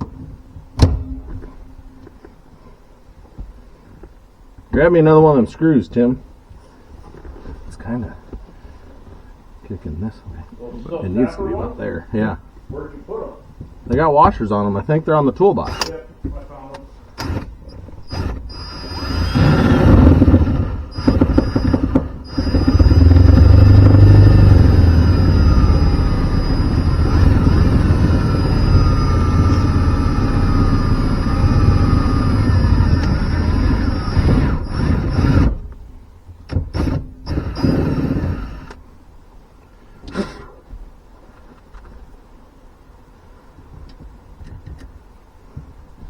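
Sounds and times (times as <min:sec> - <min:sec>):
power drill running under load: 0:17.2 - 0:35.6, 0:36.6 - 0:38.8.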